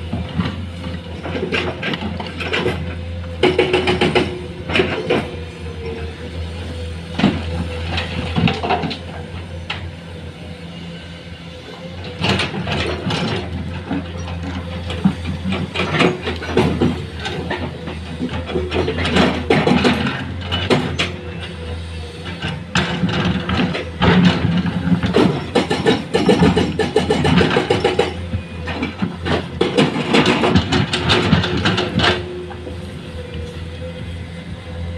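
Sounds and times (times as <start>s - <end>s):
metallic clanks and knocks: 1.2s - 5.4s, 12.2s - 21.2s, 22.4s - 32.5s.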